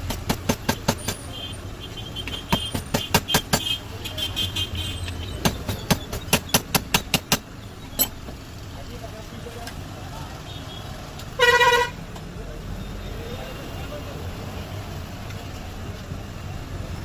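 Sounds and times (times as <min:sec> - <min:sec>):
rapid sharp tool taps: 0:00.0 - 0:01.3, 0:02.3 - 0:03.8, 0:05.4 - 0:07.5
street traffic: 0:00.0 - 0:17.0.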